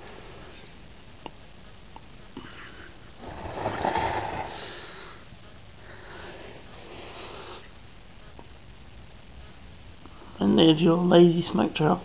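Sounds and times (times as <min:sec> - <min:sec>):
person breathing: 0:02.4 - 0:07.7.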